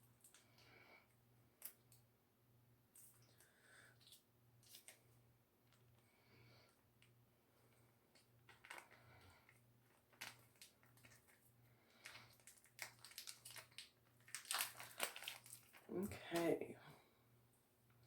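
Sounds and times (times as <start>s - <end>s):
crinkling and rustling packet: 3.0s - 5.1s, 7.8s - 16.5s.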